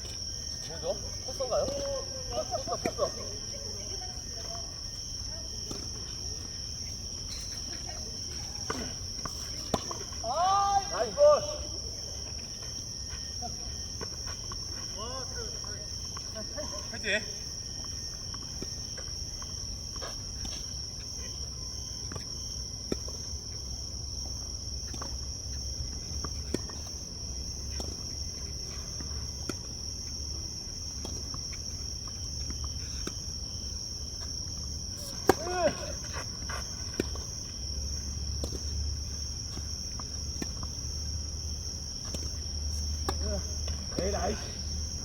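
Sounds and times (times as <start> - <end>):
insects droning: 0.0 - 45.0
person shouting: 10.2 - 11.6, 35.4 - 36.0
tennis balls struck by rackets: 24.3 - 45.0.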